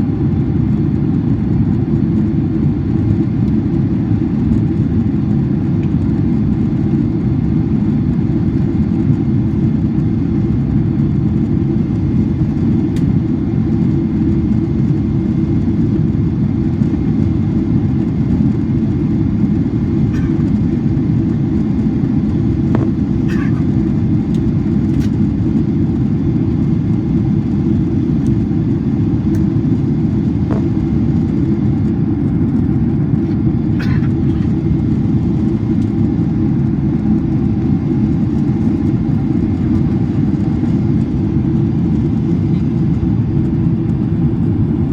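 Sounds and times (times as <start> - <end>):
airplane cabin rumble: 0.0 - 44.9
faint clicks in cabin: 24.3 - 25.2.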